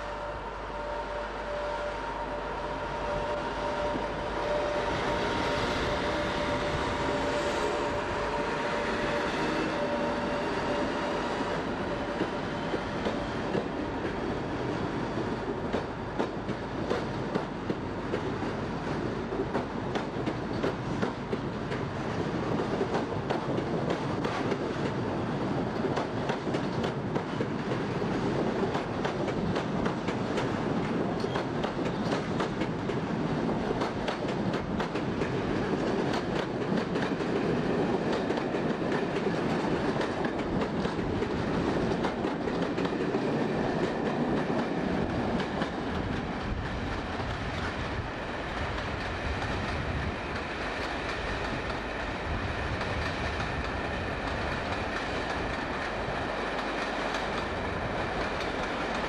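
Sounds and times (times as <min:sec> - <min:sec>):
train rumble: 0:00.0 - 0:59.0
train wheels clicking over rail joints: 0:25.6 - 0:59.0.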